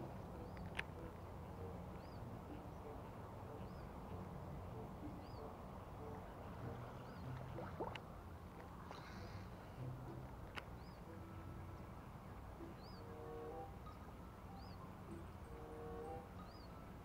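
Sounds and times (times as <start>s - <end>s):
bird chirping: 0.0s - 7.6s, 10.6s - 11.5s, 12.3s - 16.9s
low steady rumble: 0.0s - 17.0s.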